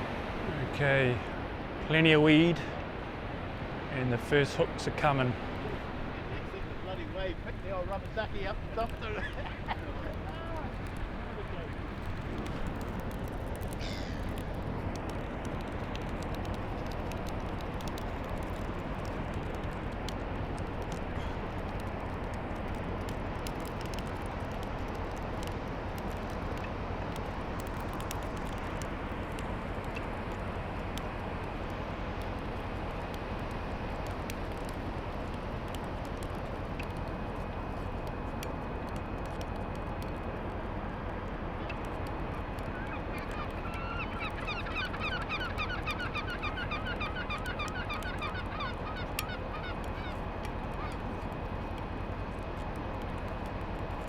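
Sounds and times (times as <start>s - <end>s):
wind: 0.0s - 54.0s
bird calling repeated notes: 42.7s - 51.0s.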